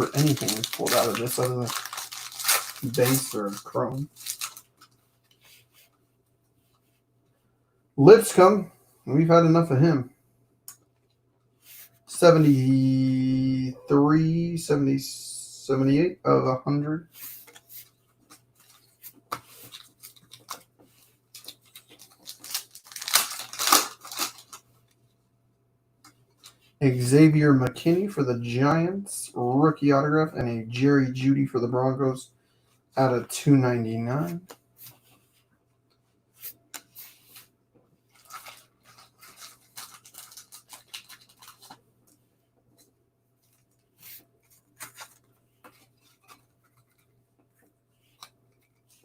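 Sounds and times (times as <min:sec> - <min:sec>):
pack wrapper tearing open: 0:00.0 - 0:04.7, 0:21.4 - 0:24.6, 0:38.2 - 0:41.8
cards clicking and rustling: 0:00.0 - 0:04.9, 0:18.2 - 0:20.7, 0:21.3 - 0:24.6, 0:38.2 - 0:41.8, 0:44.4 - 0:47.1.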